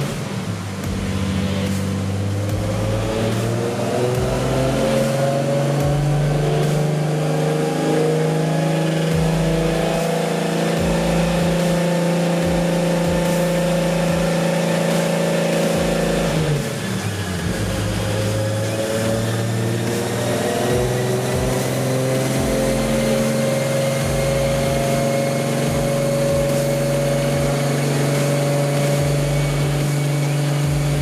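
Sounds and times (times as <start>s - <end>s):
car engine running on a dyno: 0.0s - 31.0s.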